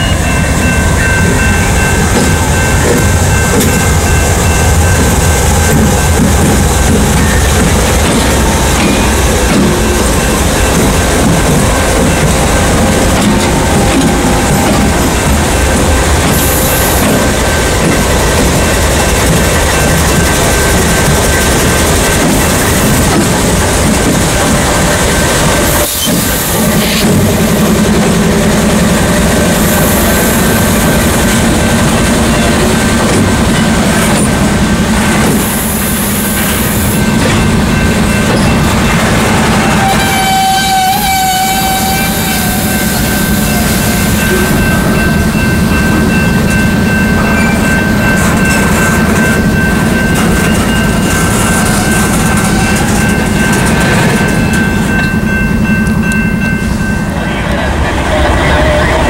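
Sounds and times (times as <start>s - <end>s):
rolling rail noise: 0.0s - 59.0s
train engine drone: 0.0s - 59.0s
multi-pitch horn tone: 39.7s - 43.3s.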